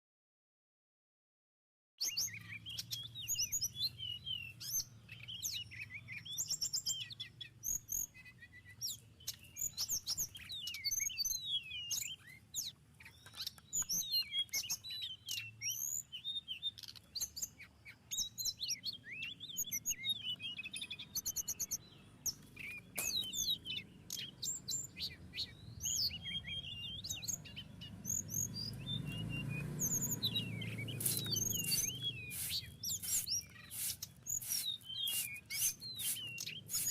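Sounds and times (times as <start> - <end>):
songbird chirping and twittering: 2.0 - 36.9.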